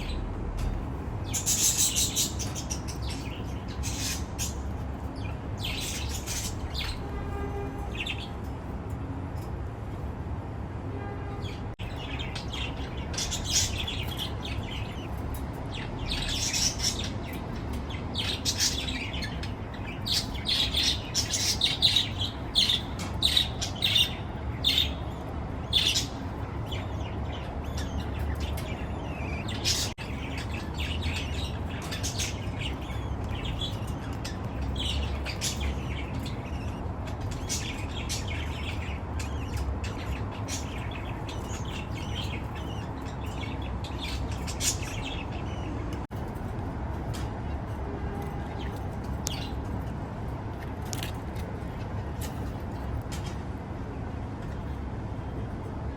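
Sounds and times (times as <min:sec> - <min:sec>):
budgerigars chirping: 0:01.3 - 0:07.1, 0:15.8 - 0:45.8.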